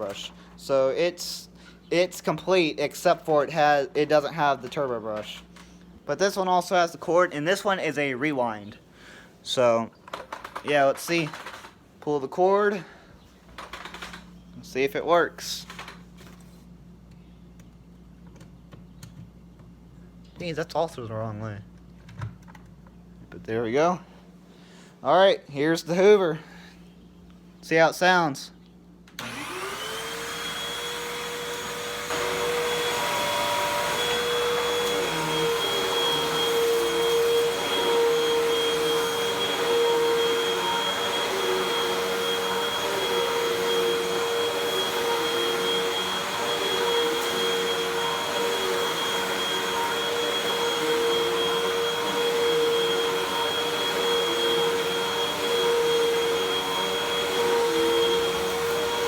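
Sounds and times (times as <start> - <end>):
vacuum cleaner motor whine: 29.2 - 59.0.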